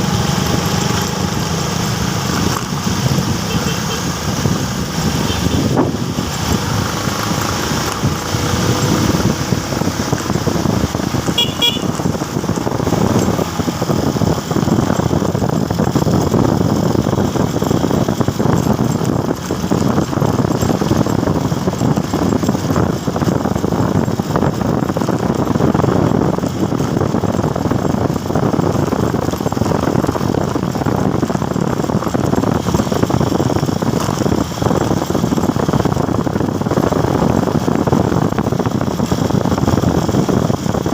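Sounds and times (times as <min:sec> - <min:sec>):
motorcycle engine and wind noise: 0:00.0 - 0:40.9
vehicle horn toot: 0:03.4 - 0:04.1, 0:11.3 - 0:12.0.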